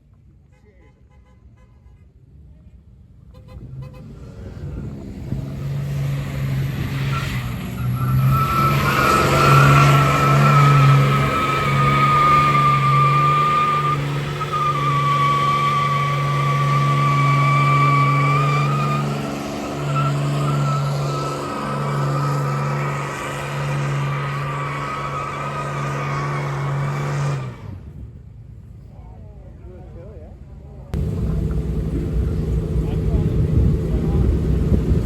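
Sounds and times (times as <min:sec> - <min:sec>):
truck engine at high revs: 0:03.5 - 0:27.9, 0:31.0 - 0:35.0
tyres squealing: 0:07.0 - 0:26.4.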